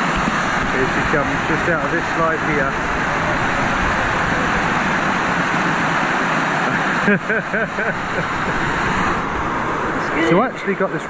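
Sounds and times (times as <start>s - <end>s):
water rushing and splashing: 0.0s - 11.0s.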